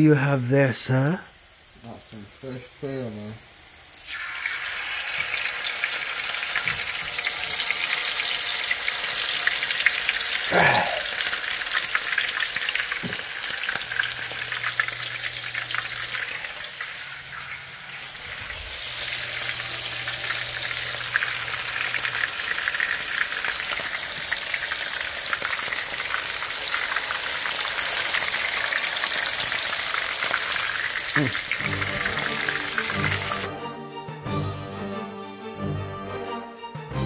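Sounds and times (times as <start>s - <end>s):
meat sizzling in hot oil: 1.3s - 33.5s.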